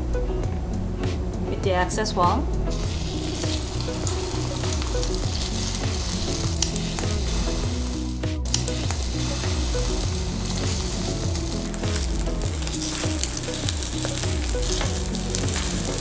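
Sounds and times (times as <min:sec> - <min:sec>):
mushrooms sizzling in oil: 0:02.7 - 0:16.0.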